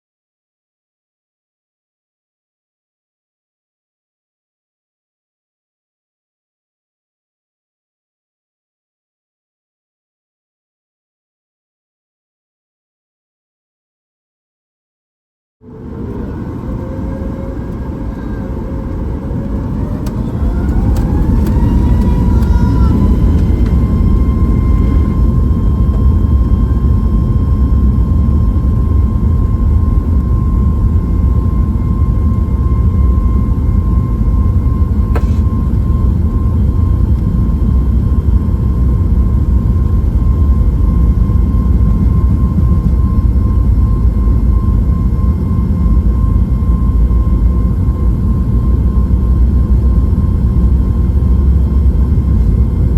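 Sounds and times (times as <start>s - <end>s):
jet engine whine: 15.6s - 52.9s
loud engine rumble: 15.6s - 52.9s.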